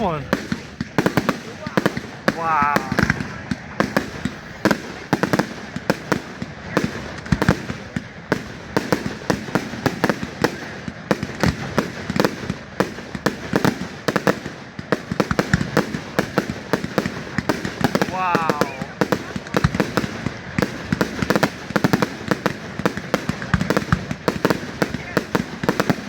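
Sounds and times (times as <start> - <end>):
rumble of echoing reports: 0.0 - 0.8
fireworks bangs and crackles: 0.0 - 26.0.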